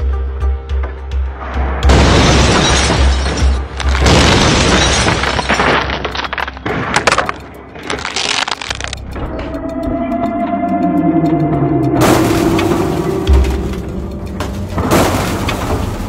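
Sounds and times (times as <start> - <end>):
background music with bass: 0.0 - 4.6, 5.2 - 16.0
glass shattering: 1.9 - 8.8, 12.0 - 16.0
debris clicking: 1.9 - 9.3, 12.0 - 16.0
metal crunching: 1.9 - 9.6, 11.9 - 16.0
car crash impact: 12.0 - 16.0.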